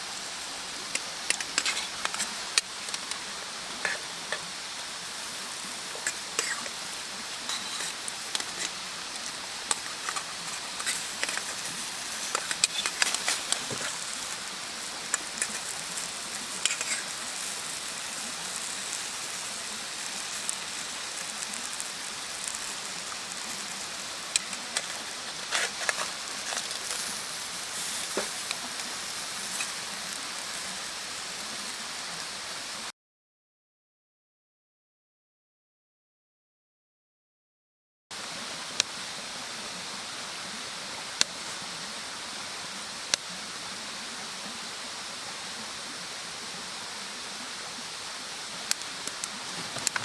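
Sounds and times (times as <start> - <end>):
fire hiss: 0.0 - 32.9, 38.2 - 50.0
bonfire crackling and popping: 0.8 - 32.9, 48.5 - 50.0.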